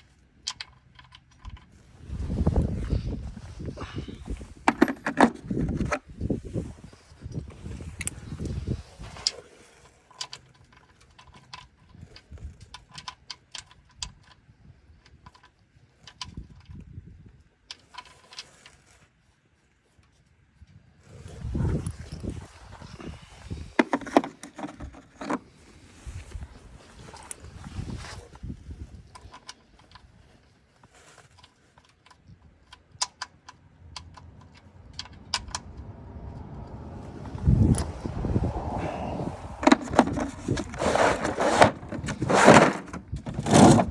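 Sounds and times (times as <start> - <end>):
metal parts clicking and clinking: 4.6 - 6.0, 23.8 - 25.4, 39.6 - 43.9.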